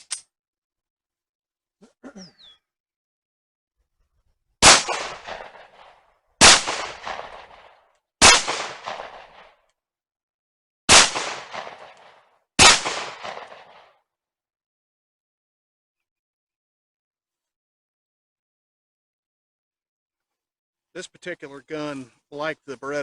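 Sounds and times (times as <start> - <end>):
pistol shots echoing: 4.6 - 9.5, 10.9 - 13.9.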